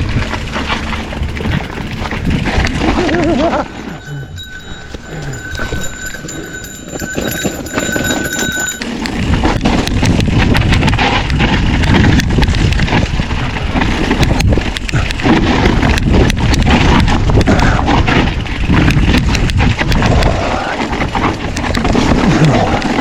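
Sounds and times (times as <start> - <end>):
steady high whine: 0.1 - 9.3
bike tyres rolling on rocky trail: 5.4 - 23.0.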